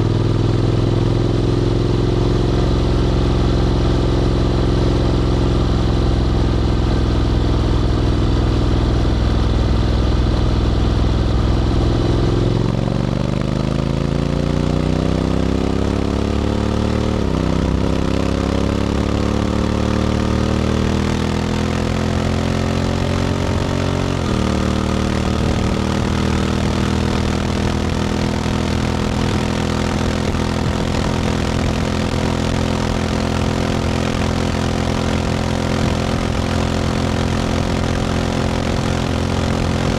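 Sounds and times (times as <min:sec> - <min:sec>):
motorcycle engine pulling away: 0:10.5 - 0:39.9.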